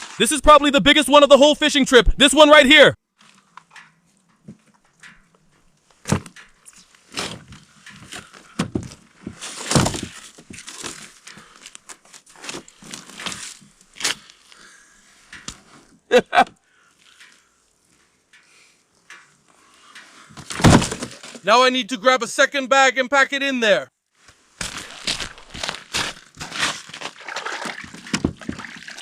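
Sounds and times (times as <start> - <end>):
dull thuds: 7.2 - 10.7, 20.4 - 21.4
plastic bag rustling: 24.4 - 29.0.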